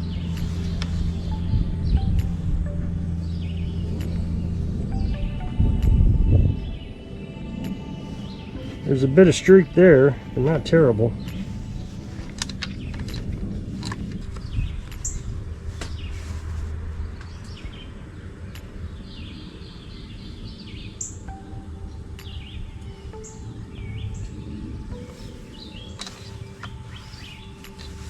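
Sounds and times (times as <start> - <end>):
low steady rumble: 0.0 - 20.6
birds chirping: 0.0 - 28.0.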